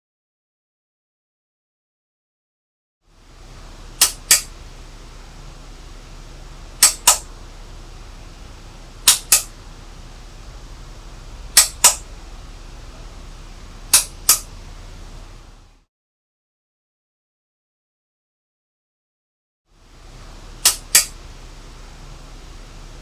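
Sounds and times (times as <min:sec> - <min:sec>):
faint steady hiss: 0:03.1 - 0:15.8, 0:19.7 - 0:23.0
sharp clicks in pairs: 0:04.0 - 0:04.5, 0:06.8 - 0:07.3, 0:09.1 - 0:09.6, 0:11.6 - 0:12.0, 0:13.9 - 0:14.5, 0:20.6 - 0:21.2.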